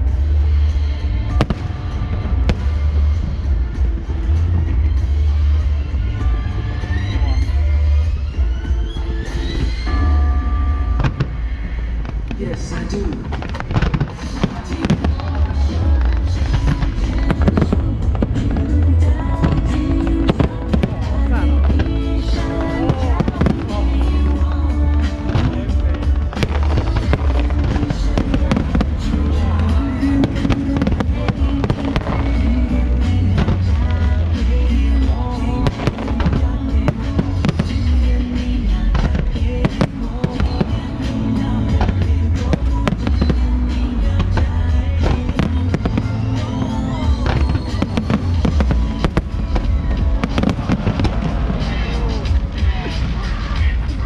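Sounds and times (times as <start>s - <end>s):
fireworks bangs: 0.0s - 54.0s
loud music with heavy bass: 0.0s - 54.0s
fireworks rising whistles: 0.5s - 12.4s, 45.4s - 54.0s.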